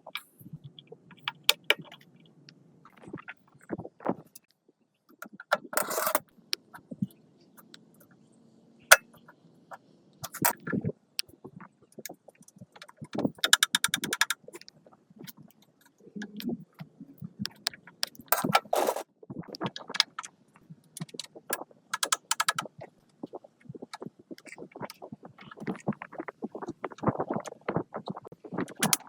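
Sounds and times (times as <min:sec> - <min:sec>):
rapid clicking: 0:13.4 - 0:14.4
metal parts clinking and scraping: 0:18.4 - 0:19.0.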